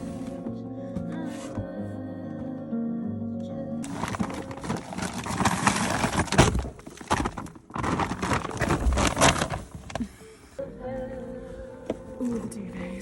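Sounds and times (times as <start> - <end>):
rustling and clattering: 3.8 - 10.3.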